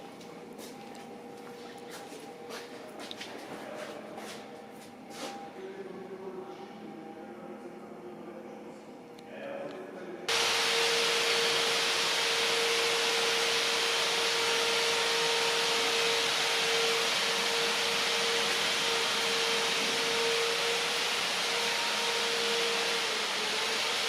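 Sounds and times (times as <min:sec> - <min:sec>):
machine hissing with whine: 0:10.3 - 0:24.0.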